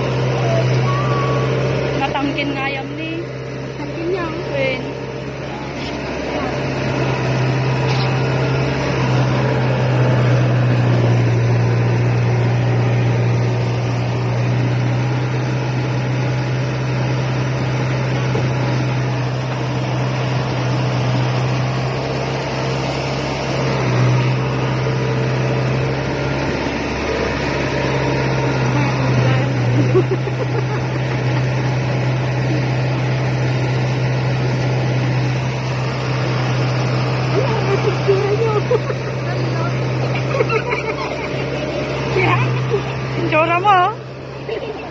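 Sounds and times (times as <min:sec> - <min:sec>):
combine harvester engine drone: 0:00.0 - 0:44.9
machinery noise: 0:00.0 - 0:44.9.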